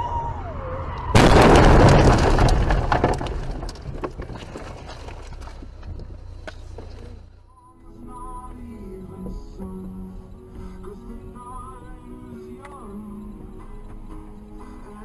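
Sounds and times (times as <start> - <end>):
car crash: 0.2 - 7.0
metal crunching: 1.1 - 7.5
debris clinking: 1.2 - 7.3.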